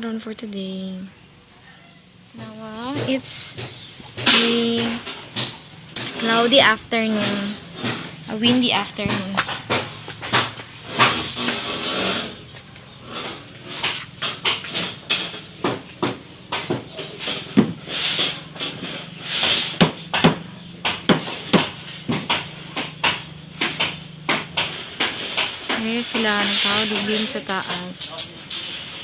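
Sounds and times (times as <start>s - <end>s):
hammer knocking on wood: 2.4s - 11.7s, 13.8s - 27.7s.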